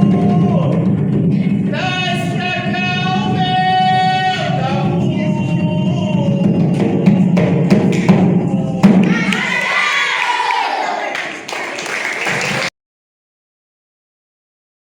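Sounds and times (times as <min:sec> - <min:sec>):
person singing: 0:02.5 - 0:09.6.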